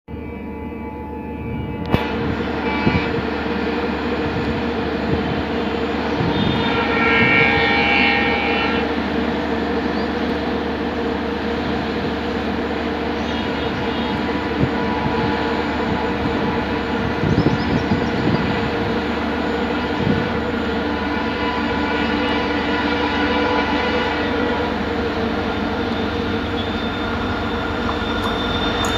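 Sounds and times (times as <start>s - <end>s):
locomotive horn: 0.1s - 3.6s, 5.7s - 9.2s, 13.2s - 17.1s, 18.0s - 28.9s
locomotive engine drone: 0.1s - 28.9s
train wheels rumbling on rails: 0.1s - 28.9s.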